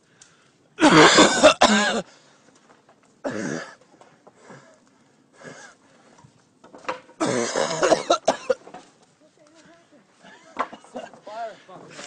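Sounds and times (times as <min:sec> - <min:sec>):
man coughing and wheezing: 0:00.8 - 0:02.1, 0:03.2 - 0:03.8, 0:07.2 - 0:08.7.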